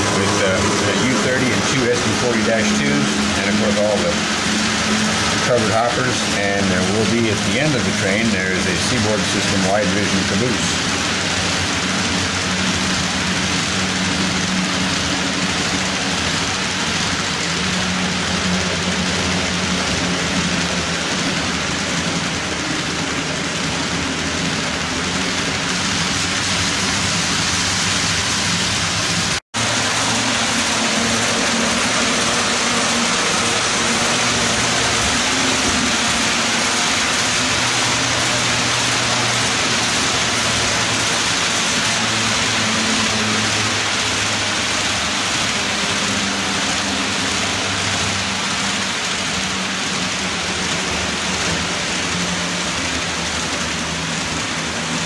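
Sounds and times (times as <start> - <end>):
locomotive motors humming: 0.0 - 55.0
model train rolling on rails: 0.0 - 55.0.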